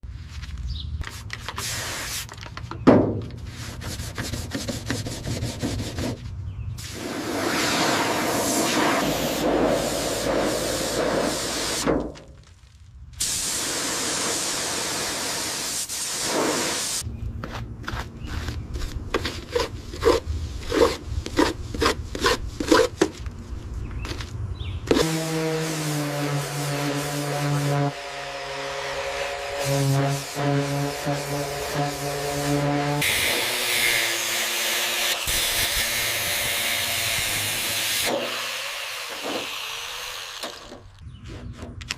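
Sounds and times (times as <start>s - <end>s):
hand scraping a surface: 3.4s - 6.4s, 17.4s - 24.3s
steady hiss: 13.1s - 17.0s
quick rubbing strokes: 17.4s - 23.6s.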